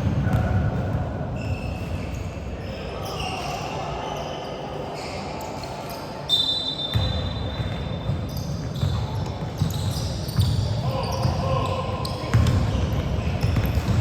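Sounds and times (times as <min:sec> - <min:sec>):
basketball bouncing on court: 0:00.0 - 0:01.1, 0:06.9 - 0:14.0
referee's whistle blown: 0:06.3 - 0:07.7
players' voices echoing: 0:08.6 - 0:14.0.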